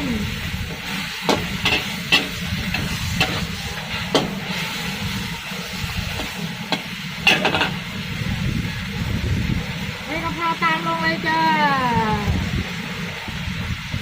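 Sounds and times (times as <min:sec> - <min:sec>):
pork frying in a wok: 0:00.0 - 0:14.0
metal spatula clanking on pan: 0:01.3 - 0:03.4, 0:06.7 - 0:07.8.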